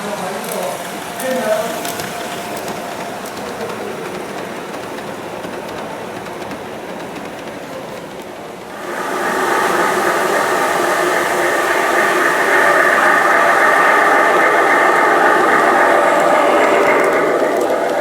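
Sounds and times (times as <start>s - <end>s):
model train running on track: 0.0s - 18.0s
steady multi-tone sound: 8.7s - 18.0s.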